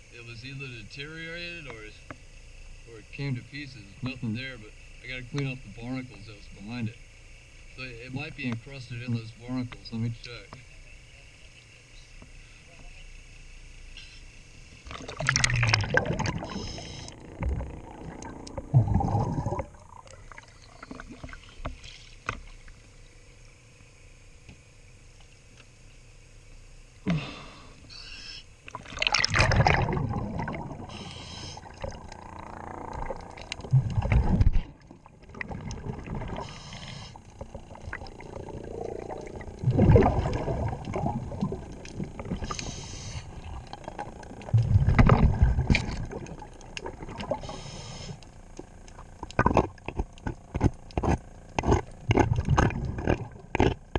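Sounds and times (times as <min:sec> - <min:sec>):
regulator hiss on inhale: 0:12.0 - 0:14.9, 0:16.4 - 0:17.2, 0:20.6 - 0:22.3, 0:26.9 - 0:28.6, 0:30.9 - 0:31.9, 0:36.3 - 0:37.6, 0:42.3 - 0:43.6, 0:47.3 - 0:48.5
gurgling rush of exhaled bubbles: 0:14.8 - 0:21.6, 0:28.6 - 0:47.7, 0:49.1 - 0:53.9
faint clicks and scrapes: 0:41.7 - 0:53.9.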